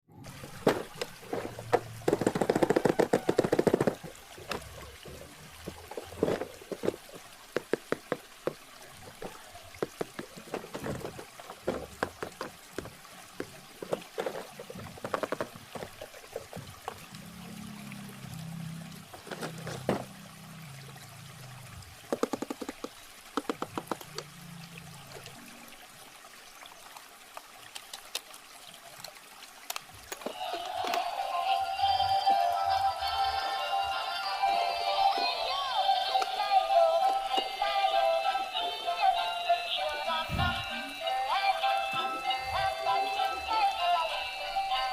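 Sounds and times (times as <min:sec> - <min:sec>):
water pouring and trickling: 0:00.1 - 0:44.9
plastic packaging crackling: 0:00.5 - 0:04.6.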